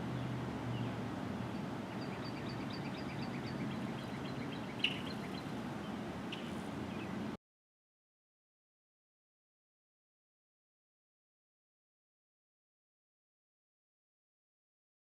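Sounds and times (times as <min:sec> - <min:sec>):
outdoor background hum: 0:00.0 - 0:07.4
songbird singing high notes: 0:01.9 - 0:07.2.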